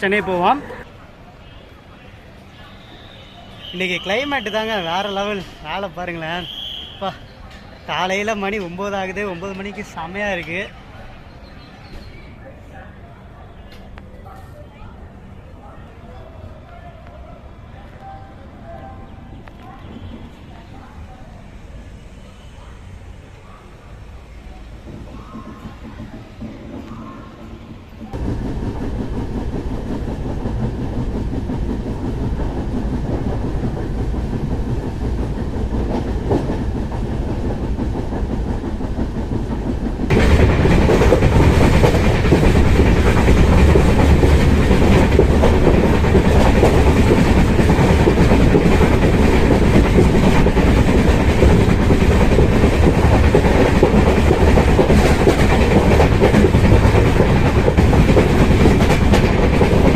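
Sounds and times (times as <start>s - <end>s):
train wheels clattering on rails: 24.7s - 59.9s.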